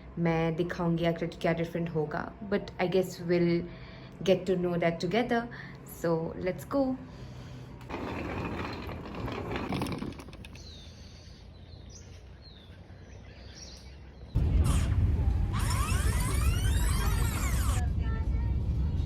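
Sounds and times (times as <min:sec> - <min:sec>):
small birds chirping: 0:10.5 - 0:14.4
loud low rumble: 0:14.4 - 0:19.0.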